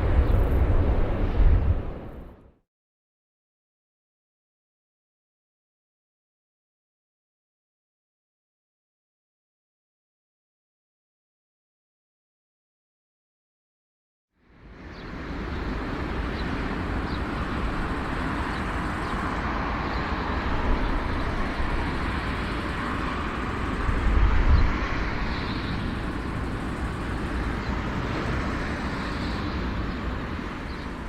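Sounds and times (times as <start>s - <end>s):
aircraft engines rumbling: 0.0s - 2.4s, 14.5s - 31.0s.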